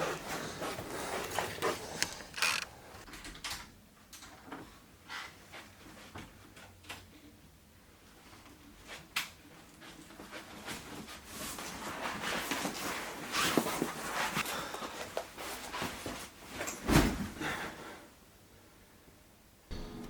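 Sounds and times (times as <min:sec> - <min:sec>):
rustling and handling noises: 0:00.0 - 0:03.1, 0:08.2 - 0:17.2
clicks: 0:01.6 - 0:03.1
heavy thump: 0:19.7 - 0:20.0.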